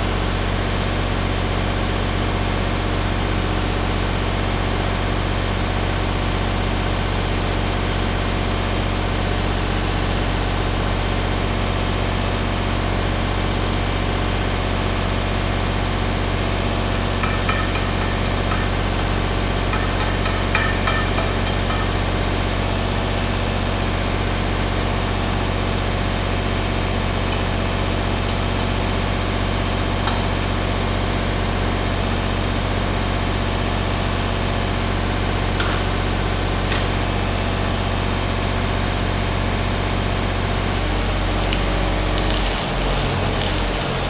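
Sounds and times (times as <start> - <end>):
welder humming and sizzling: 39.9 - 44.0.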